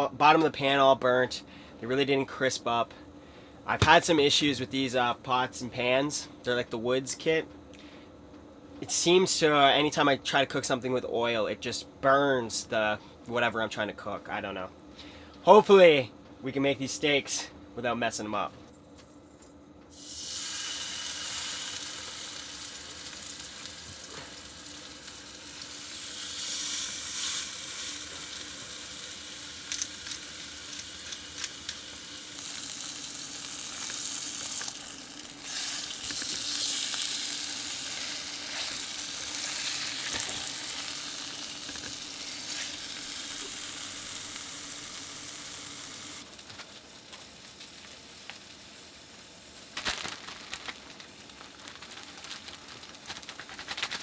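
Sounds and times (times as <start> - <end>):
steak sizzling in frying pan: 19.9 - 53.0.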